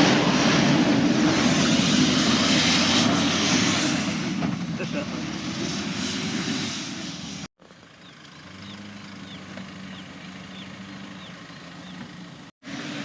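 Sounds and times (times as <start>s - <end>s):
vehicle engine running rough: 0.0s - 13.0s
engine idling: 7.6s - 12.5s.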